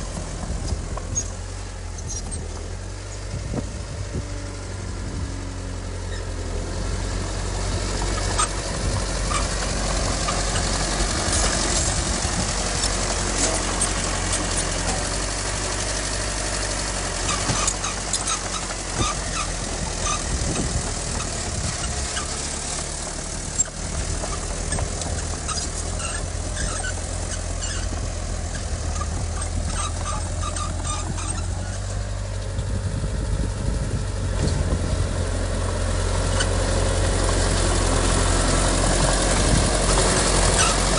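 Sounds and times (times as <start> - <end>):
diesel machinery engine droning: 0.0 - 40.9
metallic clanks and squeaks: 0.2 - 3.4, 6.0 - 6.4, 7.9 - 32.6, 36.2 - 36.6, 39.0 - 40.9.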